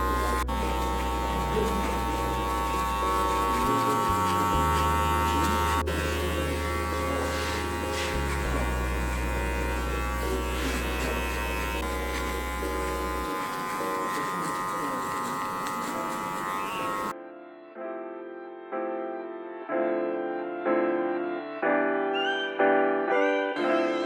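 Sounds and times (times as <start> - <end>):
electric hair clippers buzzing: 0.0 - 17.2.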